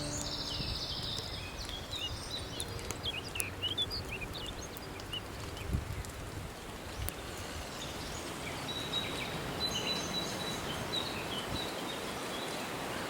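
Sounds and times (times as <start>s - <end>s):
high bird whistle: 0.0s - 1.2s
small birds chirping: 0.0s - 6.2s.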